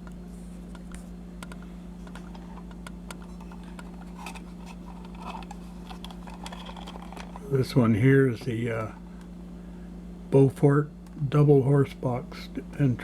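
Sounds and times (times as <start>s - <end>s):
steady electrical hum: 0.0s - 13.0s
plastic toy clicks and rustles: 3.6s - 7.4s.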